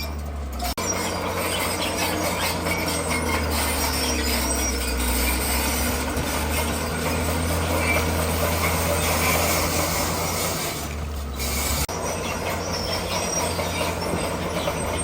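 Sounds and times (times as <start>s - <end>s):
bulldozer diesel engine running: 0.0s - 15.0s
steel tracks squealing and clanking: 0.0s - 15.0s.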